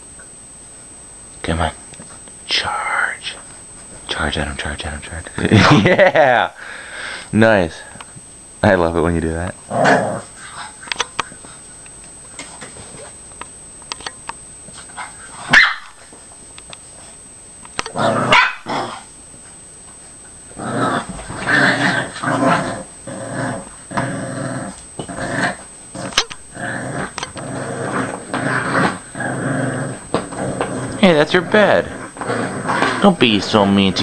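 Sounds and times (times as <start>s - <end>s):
dog growling: 9.7s - 10.8s, 17.9s - 19.1s, 20.5s - 34.0s
dog barking: 15.5s - 16.0s, 18.3s - 18.7s.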